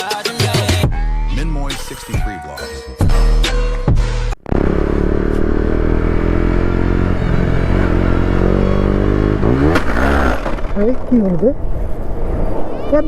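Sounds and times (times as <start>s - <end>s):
motorcycle engine running: 4.4s - 11.2s.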